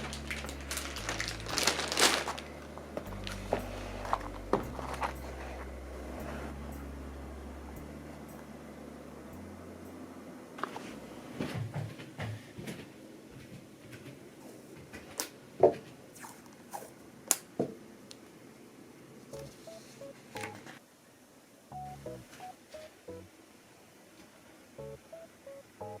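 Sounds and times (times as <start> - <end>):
electronic beeps: 19.4 - 20.6, 21.7 - 23.3, 24.8 - 26.0.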